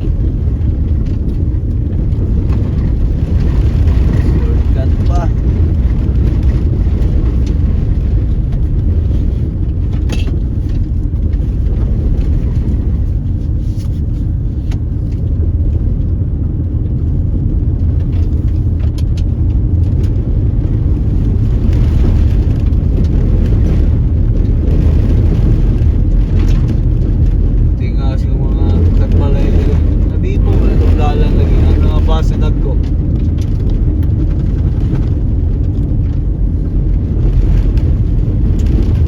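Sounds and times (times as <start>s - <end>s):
car engine and tyres rumbling: 0.0s - 39.0s.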